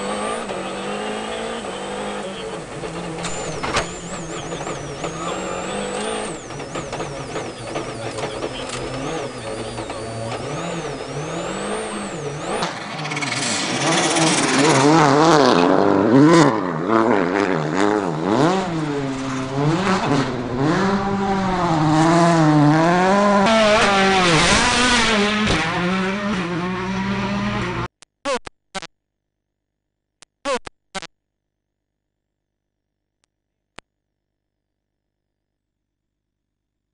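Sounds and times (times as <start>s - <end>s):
rally car engine revving: 0.0s - 27.9s.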